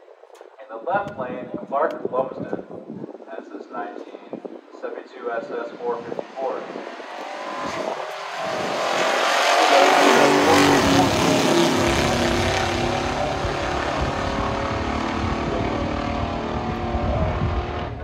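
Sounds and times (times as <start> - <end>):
car engines at full throttle: 6.0 - 18.0.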